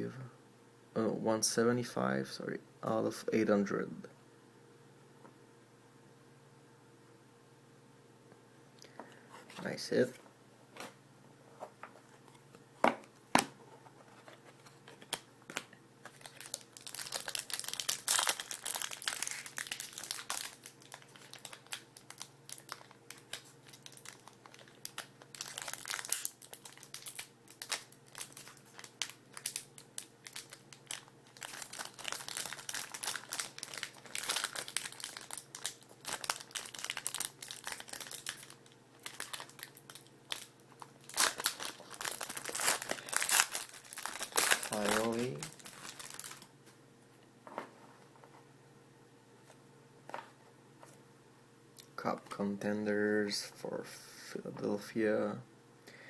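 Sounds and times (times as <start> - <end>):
card wrappers crinkling: 11.8 - 46.5.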